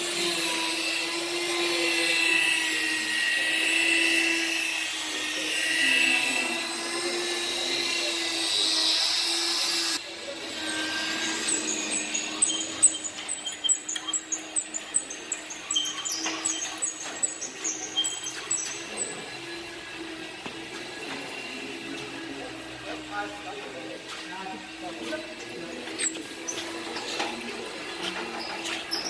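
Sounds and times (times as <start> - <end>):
electric polisher motor whine: 0.0 - 29.0
sharp high squeaks: 0.1 - 19.6, 26.0 - 29.0.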